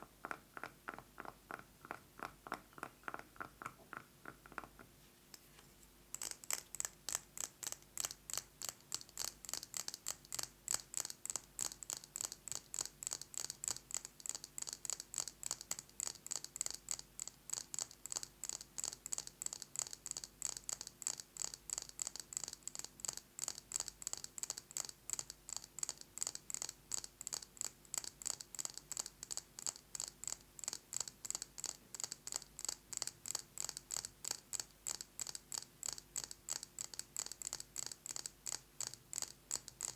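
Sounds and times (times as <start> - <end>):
fingernail tapping on glass jar: 0.2 - 4.9.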